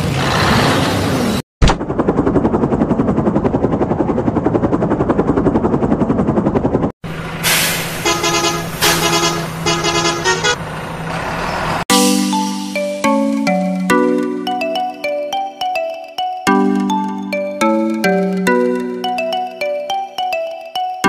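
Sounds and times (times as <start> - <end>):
toy horn toots: 8.0 - 10.6.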